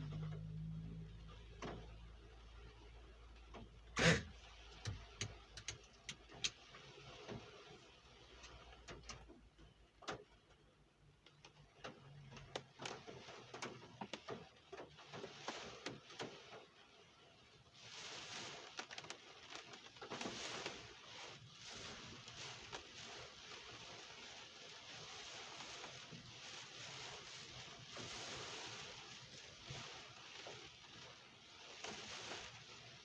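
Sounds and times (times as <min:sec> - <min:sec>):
raindrops tapping on hard surface: 0:01.4 - 0:02.4, 0:03.3 - 0:16.8, 0:18.7 - 0:20.9.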